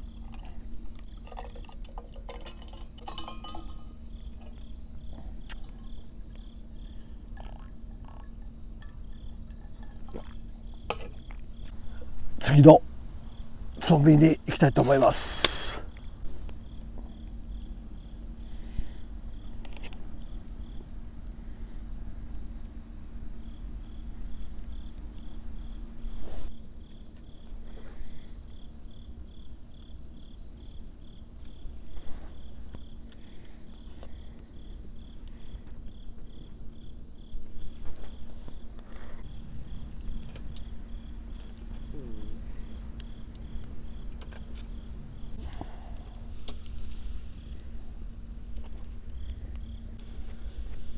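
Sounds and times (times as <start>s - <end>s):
insect high trill: 13.8s - 15.9s.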